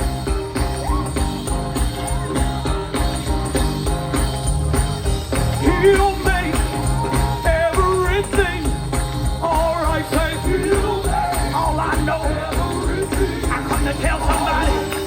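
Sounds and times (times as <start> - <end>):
gospel band music: 0.0 - 15.0
jingling percussion: 0.0 - 15.0
person singing: 9.4 - 15.0.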